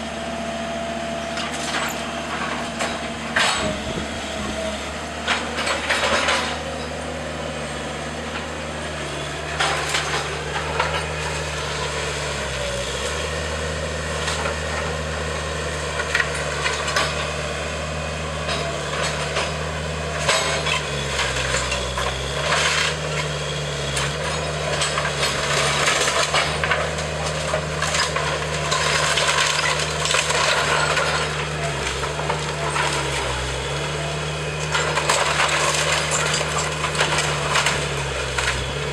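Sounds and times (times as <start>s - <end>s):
diesel engine working under load: 0.0s - 38.9s
wood cracking and splintering: 24.0s - 34.0s, 34.6s - 38.9s.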